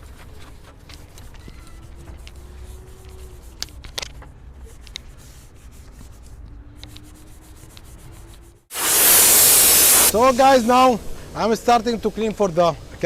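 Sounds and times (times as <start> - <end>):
brush scrubbing engine parts: 7.0 - 10.8.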